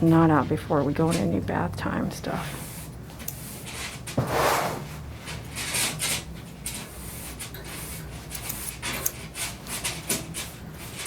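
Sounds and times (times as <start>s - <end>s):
grooming tool rasping strokes: 5.6s - 11.0s.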